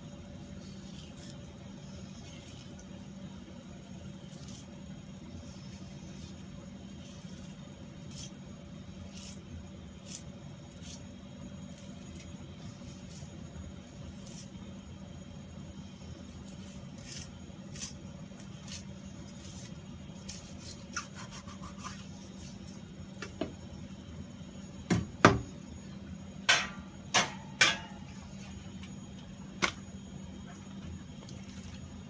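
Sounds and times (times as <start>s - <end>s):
steady low hum: 0.0s - 32.0s
knife scraping on cutting board: 19.5s - 22.6s.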